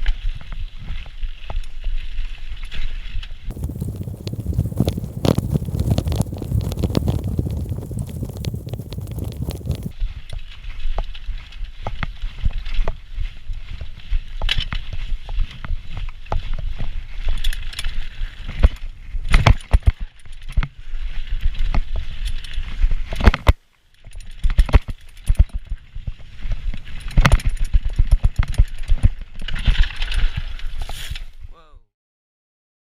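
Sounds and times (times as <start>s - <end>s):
wind rumbling on microphone: 3.5s - 10.2s.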